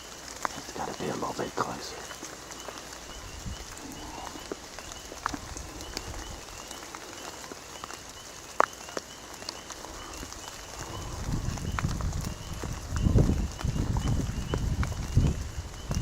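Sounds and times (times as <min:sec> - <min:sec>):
rain falling: 0:00.0 - 0:16.0.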